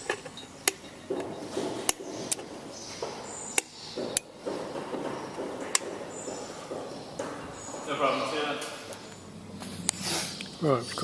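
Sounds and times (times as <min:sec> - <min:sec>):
sharp short clicks: 0:03.5 - 0:04.3.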